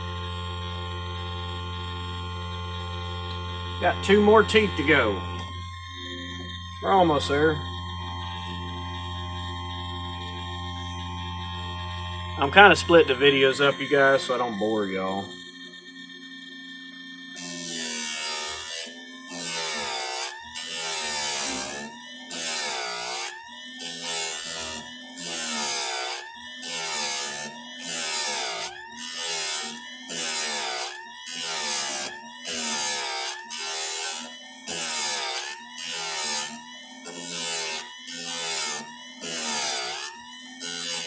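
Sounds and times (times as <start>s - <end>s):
file scraping metal on metal: 17.4s - 41.0s.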